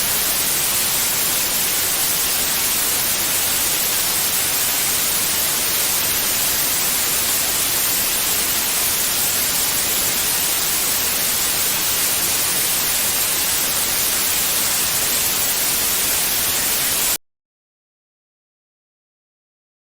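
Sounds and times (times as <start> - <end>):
white noise hiss: 0.0 - 17.2.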